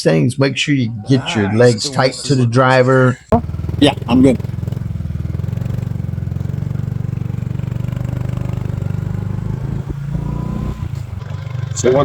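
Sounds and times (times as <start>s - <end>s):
small motorbike engine running: 3.4s - 12.0s.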